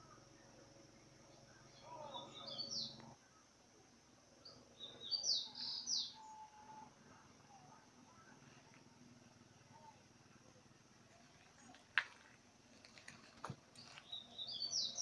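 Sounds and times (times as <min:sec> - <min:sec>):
small bird chirping: 0:00.0 - 0:03.2, 0:04.4 - 0:06.9, 0:13.7 - 0:15.0
faint low hum: 0:00.0 - 0:15.0.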